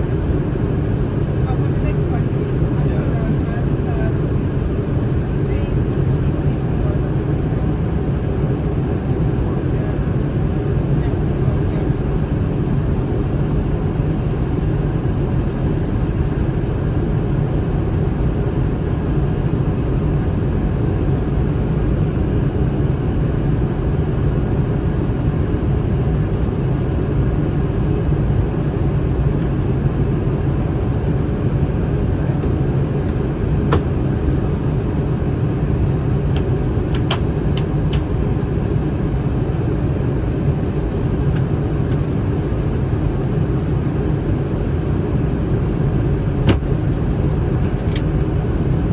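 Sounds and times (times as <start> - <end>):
low rumble of jet engines: 0.0 - 48.9
airflow past the fuselage: 26.8 - 48.9.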